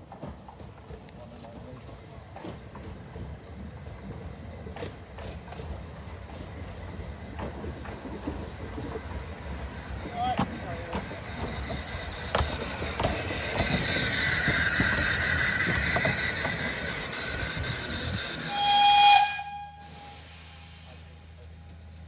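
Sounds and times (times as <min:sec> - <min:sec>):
wheels clicking over rail joints: 0:00.0 - 0:18.5
steam train running: 0:00.0 - 0:22.0
wavering wheel squeal: 0:06.3 - 0:21.3
short high whistle: 0:18.4 - 0:21.2.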